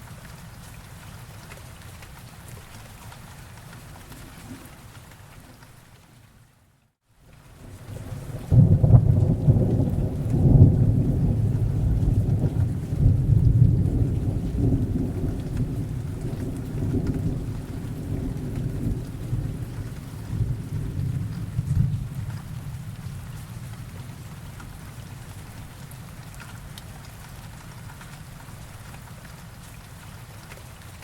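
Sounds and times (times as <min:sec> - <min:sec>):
steady rain: 0:00.0 - 0:31.0
rolling thunder: 0:07.8 - 0:24.3.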